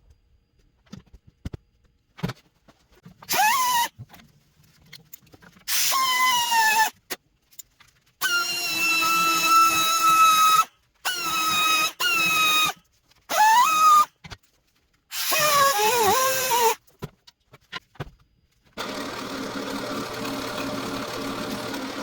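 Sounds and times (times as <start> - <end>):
power drill whining: 8.2 - 14.0, 15.1 - 16.8, 18.8 - 22.0.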